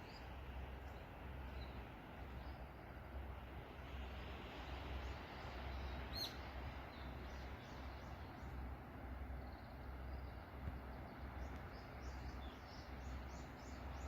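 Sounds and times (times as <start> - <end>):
faint bird chirps: 5.0 - 8.6.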